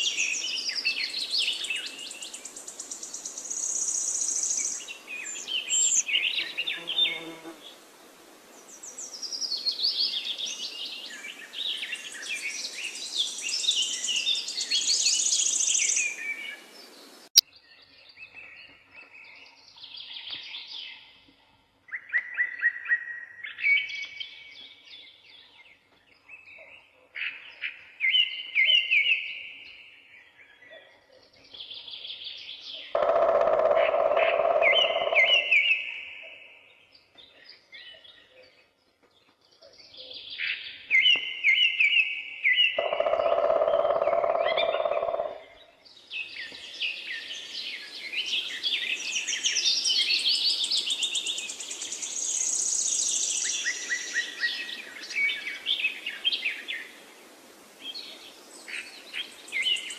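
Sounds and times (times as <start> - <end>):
steady background hiss: 0.0 - 17.3, 45.9 - 59.9
songbirds singing: 0.0 - 59.9.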